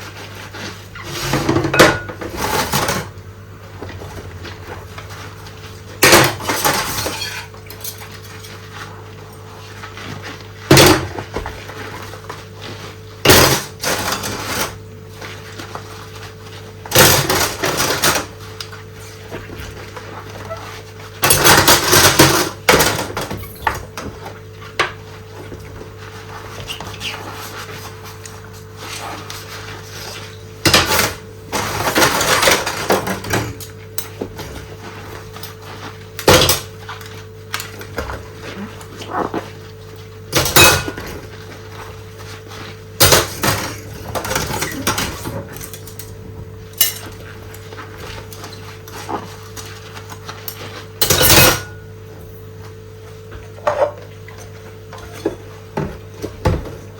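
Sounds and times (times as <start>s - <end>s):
dishes and cutlery clattering: 1.3s - 3.1s, 40.4s - 41.2s, 46.8s - 47.2s, 50.5s - 51.8s.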